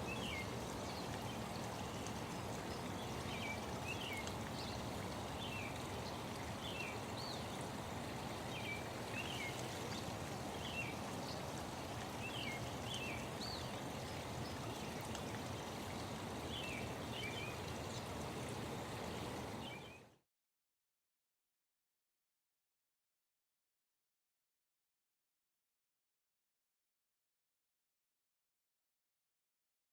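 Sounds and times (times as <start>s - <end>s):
running water: 0.0s - 20.2s.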